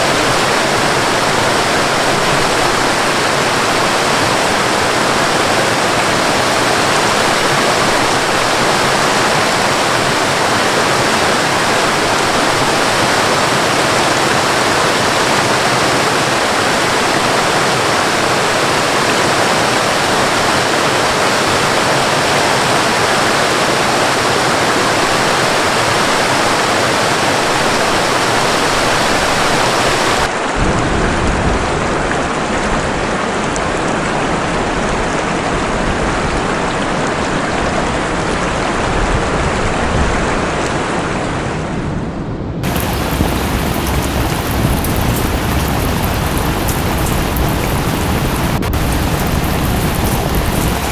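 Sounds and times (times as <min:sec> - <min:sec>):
waterfall rushing: 0:00.0 - 0:30.3, 0:42.6 - 0:50.9
rain: 0:00.0 - 0:41.2, 0:42.6 - 0:50.9.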